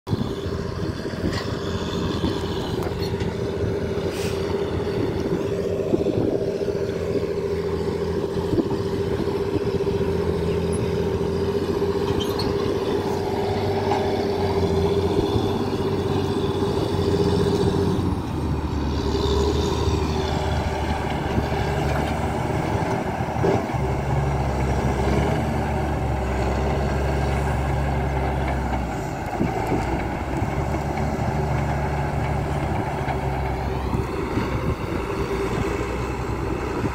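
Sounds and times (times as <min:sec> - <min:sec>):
truck engine running: 0:00.1 - 0:36.9.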